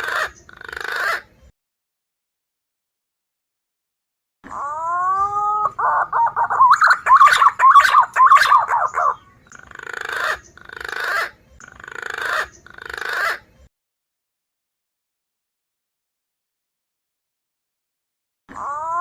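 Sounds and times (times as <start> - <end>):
warbling whistled pigeon call: 4.5 - 11.3.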